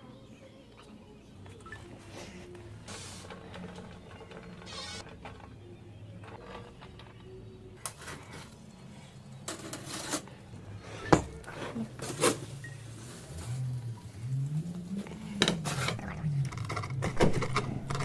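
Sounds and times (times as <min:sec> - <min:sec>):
utensils and dishes clattering: 0:06.2 - 0:12.7.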